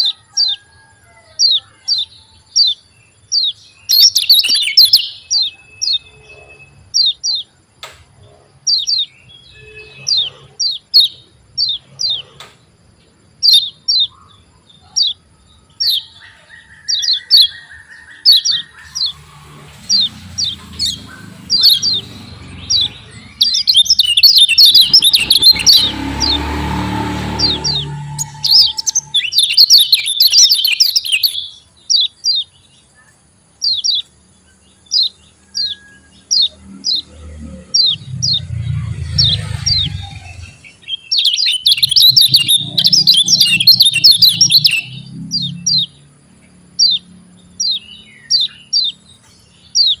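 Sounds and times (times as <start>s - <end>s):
bird chattering: 3.9s - 5.5s, 19.9s - 26.4s, 27.3s - 31.4s, 39.2s - 45.0s
bird calling sharp notes: 3.9s - 6.5s, 17.2s - 31.4s, 37.8s - 45.0s
low rough noise: 18.8s - 30.1s, 36.8s - 40.9s.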